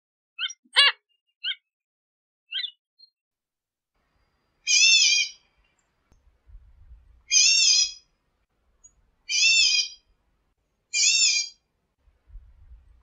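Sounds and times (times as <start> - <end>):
bird calls: 2.5 - 3.1, 4.6 - 5.9, 7.2 - 8.1, 8.8 - 10.1, 10.9 - 11.6.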